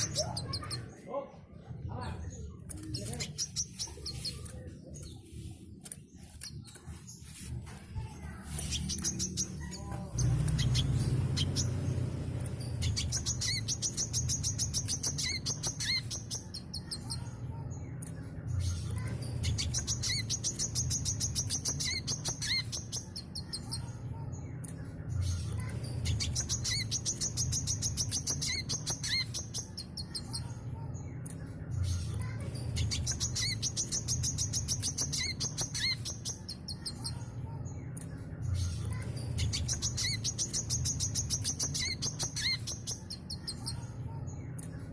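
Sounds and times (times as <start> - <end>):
sunbird trilling song: 8.4 - 17.4, 19.4 - 23.9, 26.0 - 30.5, 32.6 - 37.3, 39.3 - 43.9.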